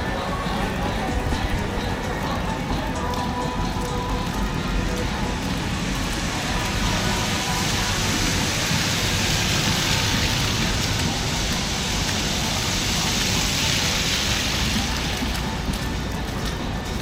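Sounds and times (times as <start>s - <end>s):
low traffic rumble: 0.0s - 17.0s
wet snow falling hiss: 4.9s - 16.6s.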